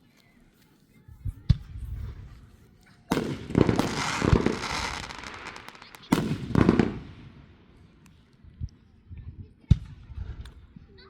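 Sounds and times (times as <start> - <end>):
deep firework booms: 3.1 - 7.5
firework bangs: 3.1 - 7.6
fireworks crackling: 3.1 - 7.8.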